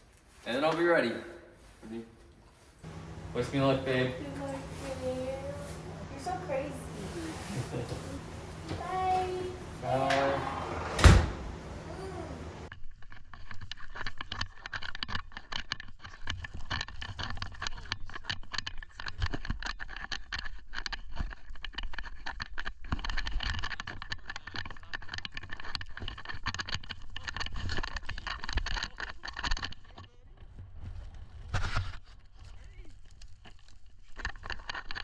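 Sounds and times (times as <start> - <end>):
dense crackle: 16.3 - 35.0.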